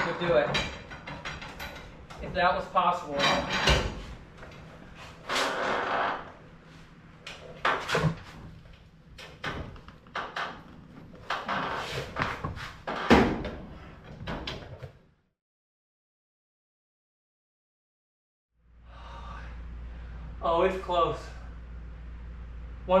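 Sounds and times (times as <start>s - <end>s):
metal tool clanking and scraping: 3.1s - 4.0s.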